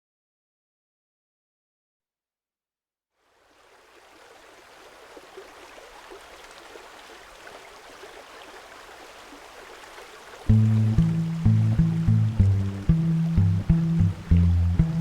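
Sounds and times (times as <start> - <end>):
small stream babbling: 3.2 - 15.0.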